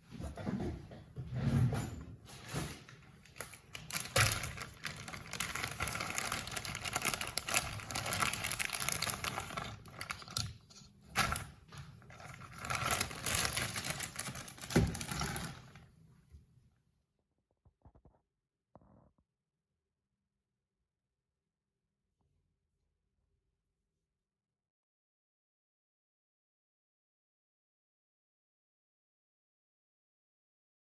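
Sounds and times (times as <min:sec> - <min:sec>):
wrapping crackling: 0:03.2 - 0:15.8.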